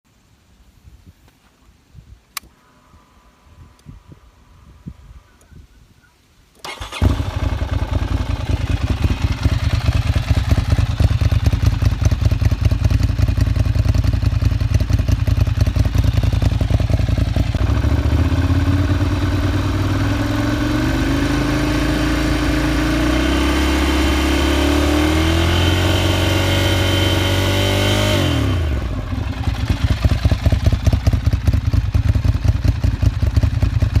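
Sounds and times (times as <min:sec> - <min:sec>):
motorcycle engine idling and revving: 0:06.6 - 0:34.0.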